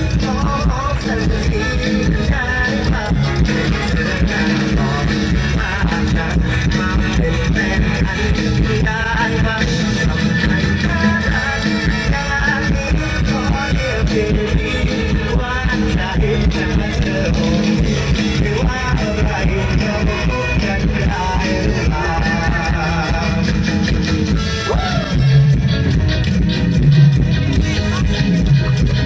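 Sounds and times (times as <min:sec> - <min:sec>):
heavy bass beat: 0:00.0 - 0:29.0
pop band music: 0:00.0 - 0:29.0.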